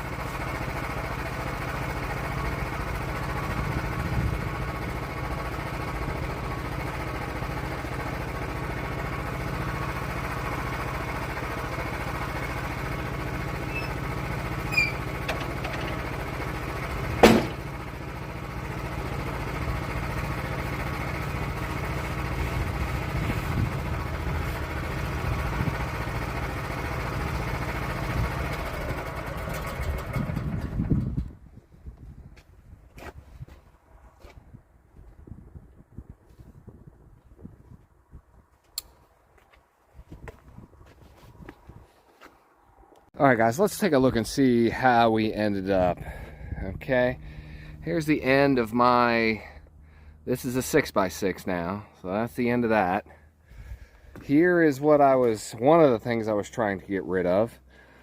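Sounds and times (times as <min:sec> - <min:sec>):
sawmill engine running: 0:00.0 - 0:31.3, 0:43.3 - 0:58.0
sharp knock: 0:17.2 - 0:17.6.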